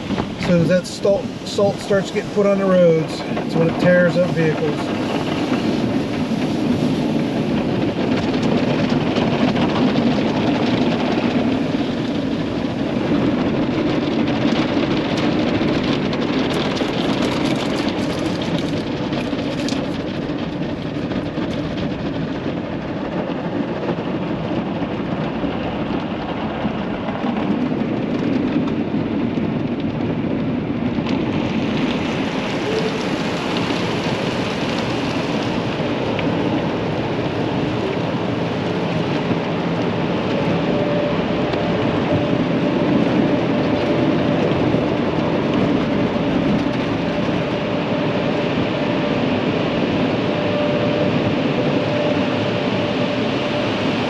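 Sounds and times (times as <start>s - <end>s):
water jets spraying on a van: 0.0s - 8.8s.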